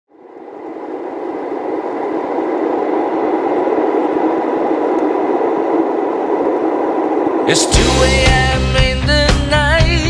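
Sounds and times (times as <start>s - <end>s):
muffled rushing noise: 0.1s - 10.0s.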